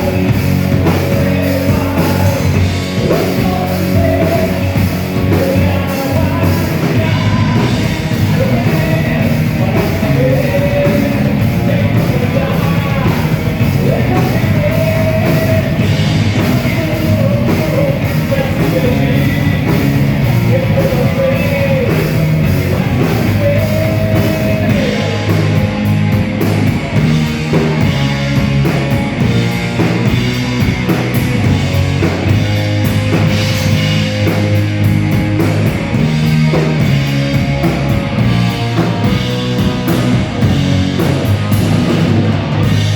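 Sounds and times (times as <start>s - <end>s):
person singing: 0.0s - 25.8s
rock band playing live: 0.0s - 42.9s.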